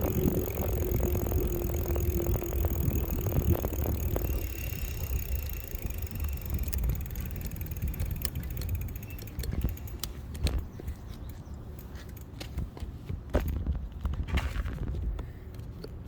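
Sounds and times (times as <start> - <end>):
faint steady whine: 0.0 - 10.1
fast even ticking: 0.0 - 10.1
wind rumbling on microphone: 0.0 - 11.6, 12.5 - 15.4.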